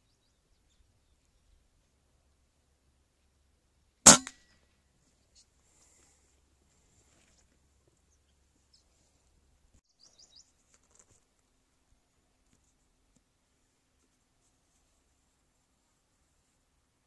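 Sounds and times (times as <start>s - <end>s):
faint high bird chirps: 0.0s - 2.4s, 9.8s - 10.7s.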